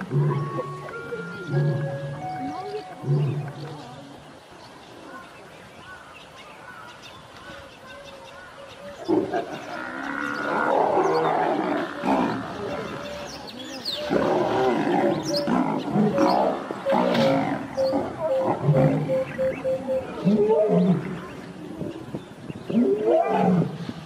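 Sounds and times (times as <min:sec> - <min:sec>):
lions growling: 0:03.0 - 0:03.8, 0:14.1 - 0:19.1
animal calls: 0:09.0 - 0:21.4.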